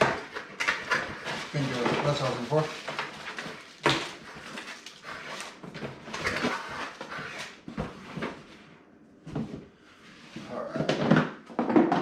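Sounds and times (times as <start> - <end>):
packaging rustling: 0.0 - 7.7.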